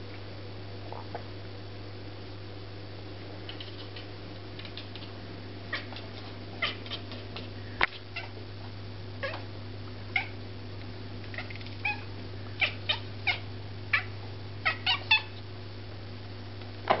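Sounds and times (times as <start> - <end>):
cat chirping: 11.4 - 15.4.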